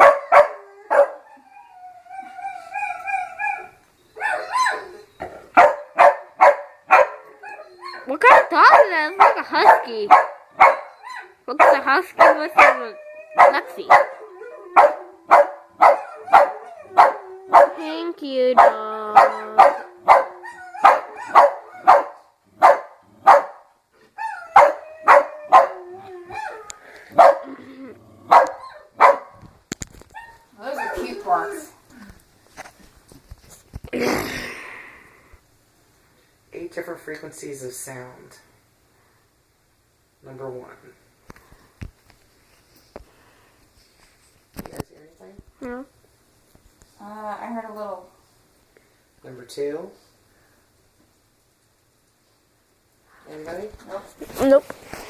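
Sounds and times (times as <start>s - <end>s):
dog barking: 0.0s - 1.2s, 5.6s - 7.6s, 8.3s - 17.8s, 18.6s - 23.7s, 24.5s - 25.8s, 27.1s - 27.6s, 28.3s - 29.4s
dog howling: 0.1s - 5.3s, 7.1s - 8.1s, 12.6s - 17.8s, 19.2s - 22.0s, 24.2s - 27.6s.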